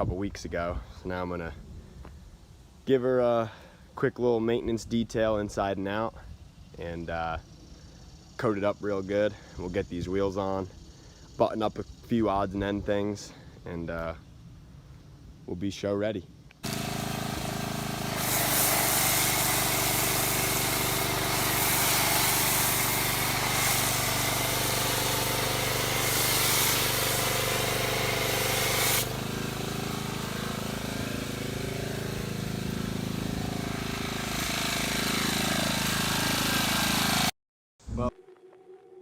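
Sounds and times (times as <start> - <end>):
loud even hiss: 16.6 - 37.3
motor running: 16.6 - 37.3.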